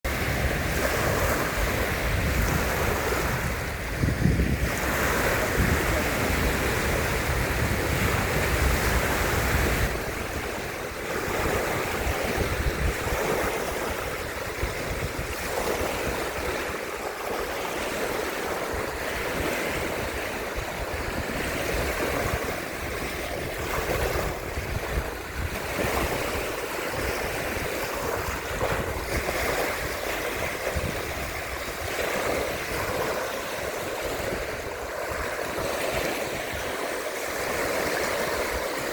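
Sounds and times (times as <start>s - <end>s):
sea waves washing on shore: 0.1s - 38.9s
wind buffeting microphone: 0.1s - 38.9s.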